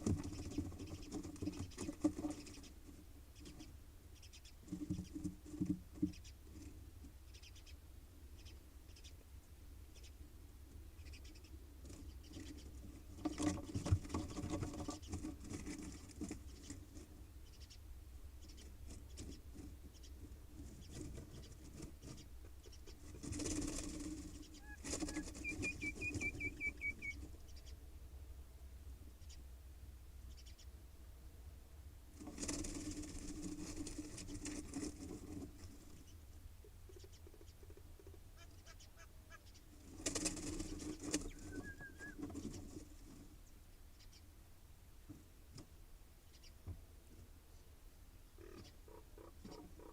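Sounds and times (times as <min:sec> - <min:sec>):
birds rustling in nest box: 0:00.0 - 0:03.8, 0:11.7 - 0:17.3, 0:18.6 - 0:27.4, 0:32.2 - 0:36.1, 0:39.7 - 0:43.4
high chirping trill: 0:24.6 - 0:27.2.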